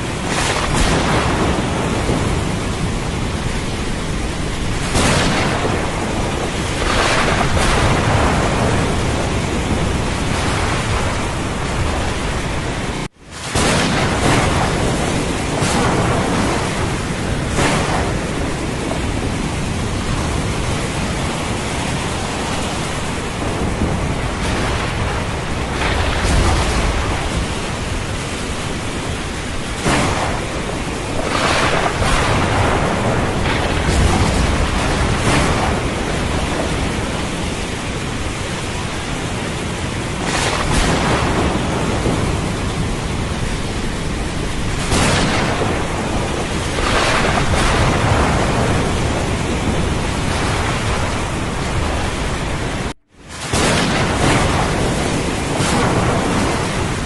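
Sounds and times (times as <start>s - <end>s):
heavy rain hiss: 0.0s - 57.0s
low thunder rumbles: 0.0s - 57.0s.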